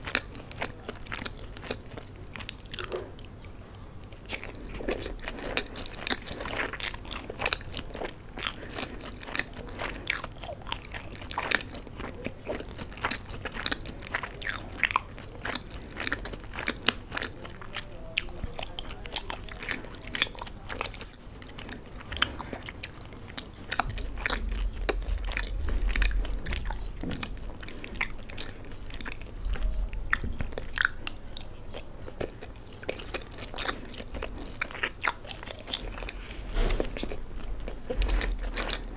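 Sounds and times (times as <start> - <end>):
chewing pasta: 0.0 - 38.9
low rumble: 24.0 - 27.7.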